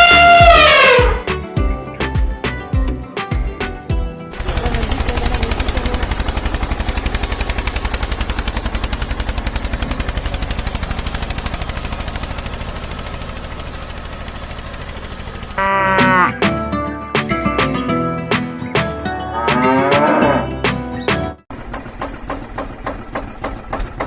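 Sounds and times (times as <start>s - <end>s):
tractor engine chugging: 4.3s - 16.7s, 21.5s - 24.0s.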